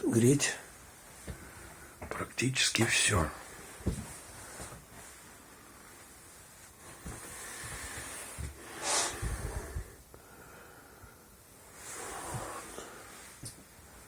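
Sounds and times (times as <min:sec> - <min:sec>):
sharp breath or sniff: 0:07.3 - 0:09.8.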